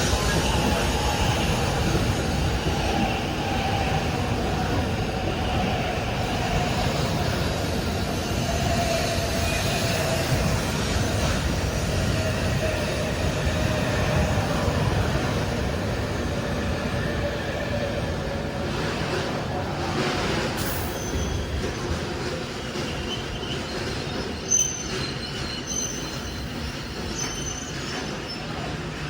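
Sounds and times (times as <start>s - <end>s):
high-speed train rumbling: 0.0s - 29.0s.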